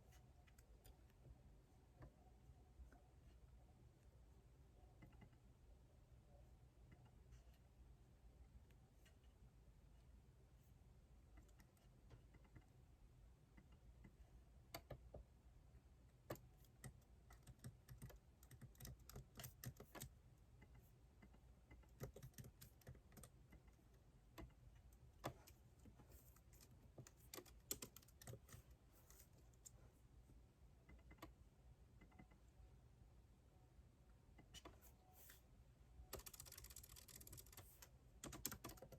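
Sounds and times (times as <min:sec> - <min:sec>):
typing on keyboard: 0:16.3 - 0:24.6, 0:26.2 - 0:29.8, 0:36.0 - 0:38.9.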